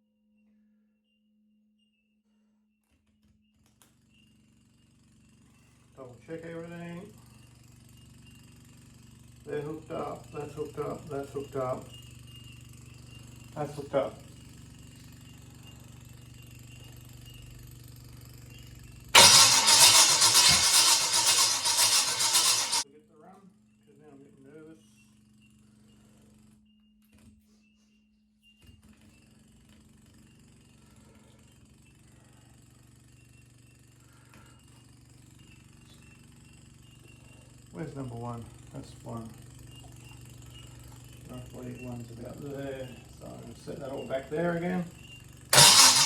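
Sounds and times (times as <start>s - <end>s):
low mechanical hum: 3.7s - 22.8s, 23.5s - 46.0s
engine cranking: 19.2s - 22.8s, 33.1s - 46.0s.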